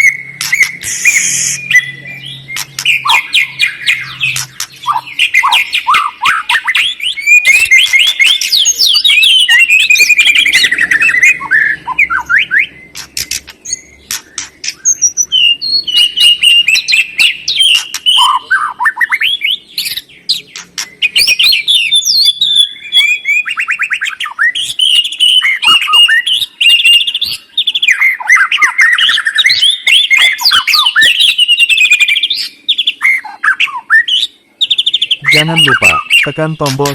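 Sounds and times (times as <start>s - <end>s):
birdsong whistles and chirps: 0.0s - 36.9s
sharp rattling bird clicks: 2.5s - 3.4s, 4.0s - 5.0s, 12.9s - 15.1s, 17.6s - 18.2s.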